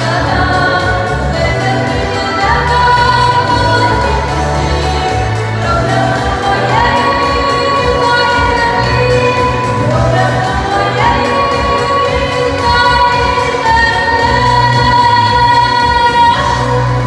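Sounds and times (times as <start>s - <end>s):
musical accompaniment: 0.0s - 17.0s
person singing: 0.0s - 17.0s.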